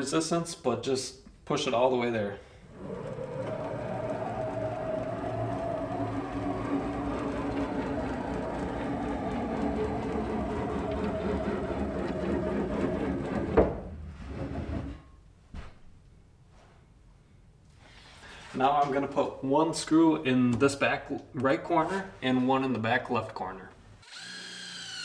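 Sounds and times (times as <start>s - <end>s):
gantry rolling whirr: 2.6s - 15.1s.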